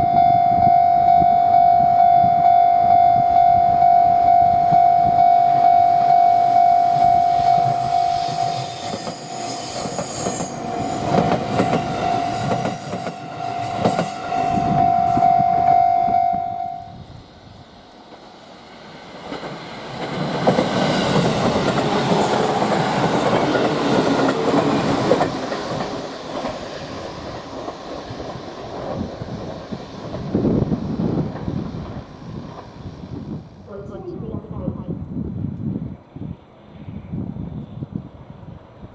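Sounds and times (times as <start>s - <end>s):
steady high tone: 0.0s - 17.1s
train wheels clattering: 8.8s - 14.8s, 19.2s - 30.4s.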